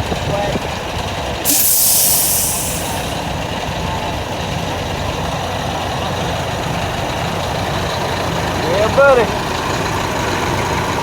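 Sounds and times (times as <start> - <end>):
truck diesel engine idling: 0.0 - 11.0
air brake hiss: 1.4 - 3.3.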